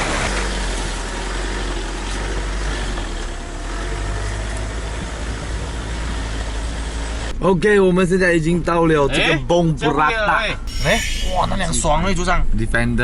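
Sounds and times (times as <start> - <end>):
road and wind noise in cabin: 0.0 - 7.4.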